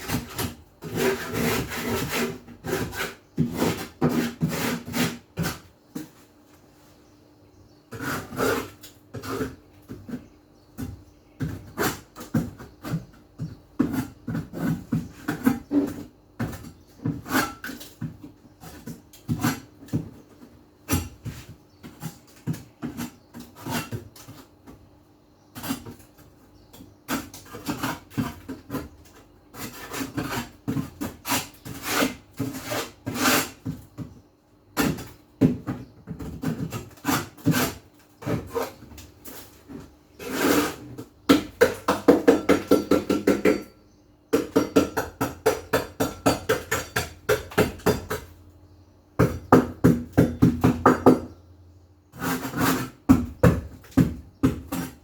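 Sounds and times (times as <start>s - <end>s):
scrubbing and scraping by hand: 0.0s - 7.0s, 7.9s - 24.6s, 27.0s - 33.9s, 35.8s - 42.9s, 52.1s - 53.4s.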